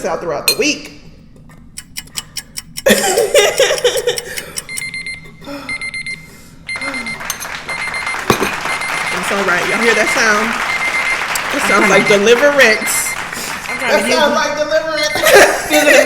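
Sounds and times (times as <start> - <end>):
timer alarm beeping: 4.2 - 15.7.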